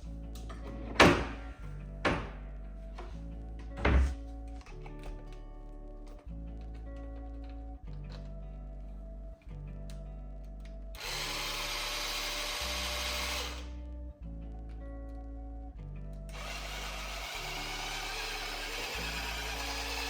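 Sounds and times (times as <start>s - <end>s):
soft background music: 0.0s - 20.0s
electric appliance whirring: 11.0s - 13.7s, 16.3s - 20.0s.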